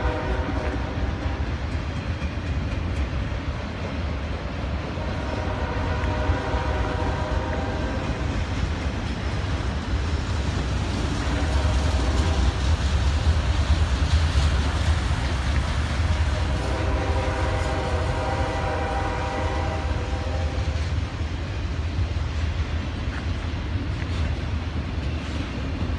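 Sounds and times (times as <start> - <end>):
train horn blasting: 0.0 - 1.4, 4.9 - 8.4, 11.1 - 12.7, 16.3 - 20.9
train rumbling by: 0.0 - 25.9.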